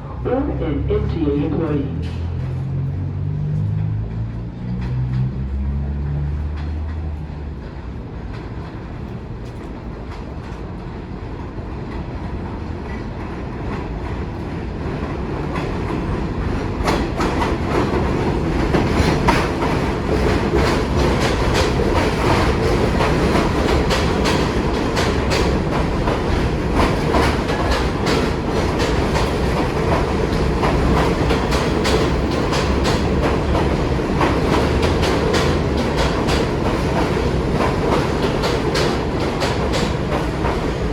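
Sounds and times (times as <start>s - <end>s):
subway train approaching: 0.0s - 40.9s
wheels clattering over rail joints: 15.5s - 40.9s.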